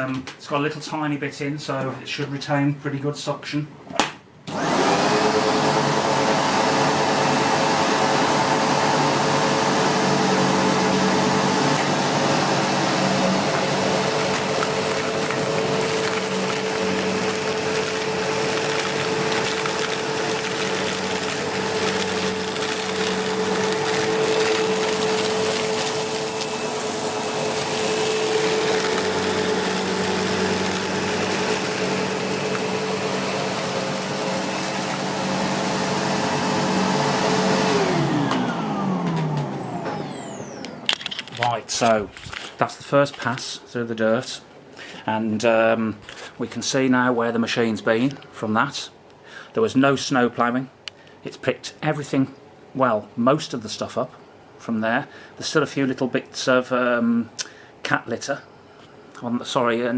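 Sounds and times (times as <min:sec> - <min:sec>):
vacuum rushing air over carpet: 0:04.5 - 0:40.8
vacuum cleaner motor whine: 0:04.5 - 0:41.3.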